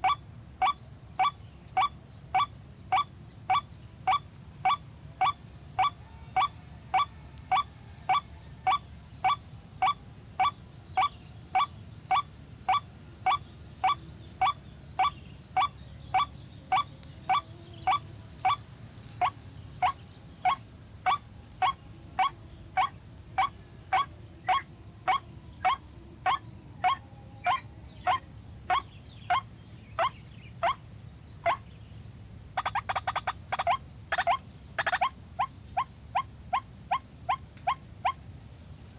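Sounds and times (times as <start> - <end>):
waterhen calling: 0.0 - 31.8, 32.5 - 38.4.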